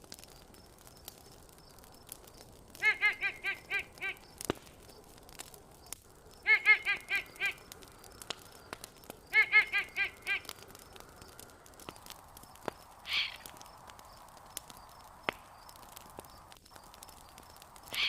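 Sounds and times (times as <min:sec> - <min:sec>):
campfire crackling: 0:00.0 - 0:18.0
nasal animal call: 0:13.0 - 0:13.5.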